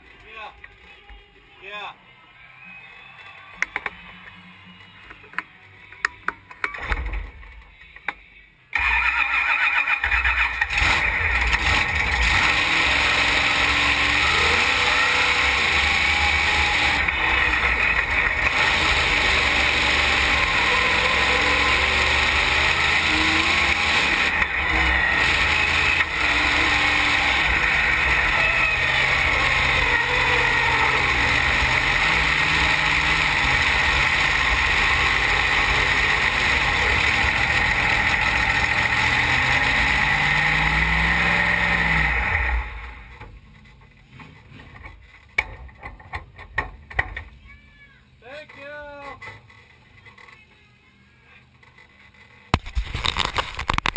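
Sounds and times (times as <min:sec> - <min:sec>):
race car engine rumbling: 0:10.0 - 0:47.6, 0:51.4 - 0:53.9.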